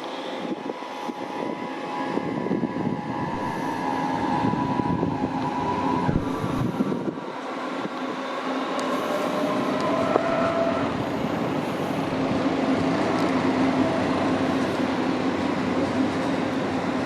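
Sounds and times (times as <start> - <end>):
constant hum: 0.0 - 17.0
train rolling on rails: 0.0 - 17.0
thin high tone: 0.1 - 7.0.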